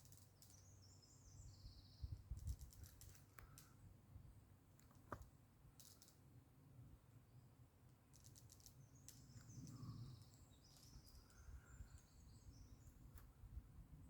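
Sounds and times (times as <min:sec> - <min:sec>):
bird chirps and warbles: 0:00.1 - 0:02.4, 0:08.2 - 0:13.3.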